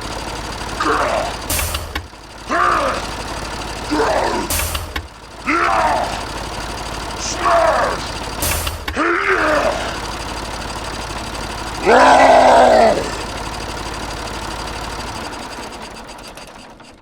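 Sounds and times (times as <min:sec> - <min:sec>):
small engine rattling: 0:00.0 - 0:17.0
loud cry: 0:00.8 - 0:01.5, 0:02.5 - 0:03.2, 0:03.9 - 0:04.5, 0:05.4 - 0:06.3, 0:07.2 - 0:08.1, 0:09.0 - 0:10.0, 0:11.8 - 0:13.3.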